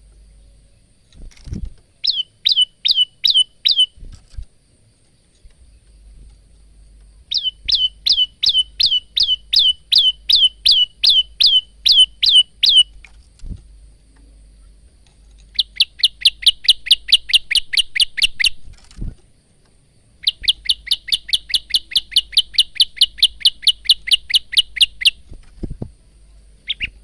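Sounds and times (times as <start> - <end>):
bird singing sharp falling notes: 2.0 - 4.0, 7.3 - 13.0.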